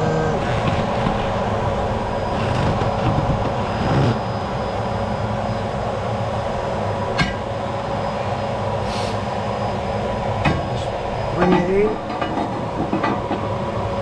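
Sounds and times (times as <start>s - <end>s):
vacuum cleaner motor whining: 0.0s - 8.6s
parts clattering: 10.4s - 13.5s.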